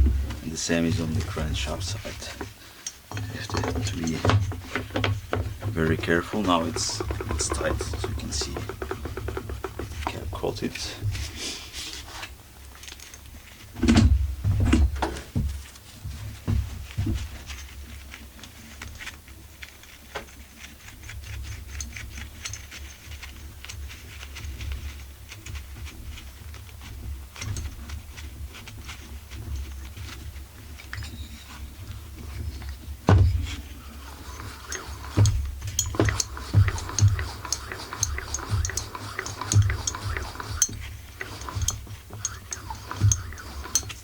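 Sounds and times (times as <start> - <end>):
metal tools clicking and knocking: 2.4 - 10.2.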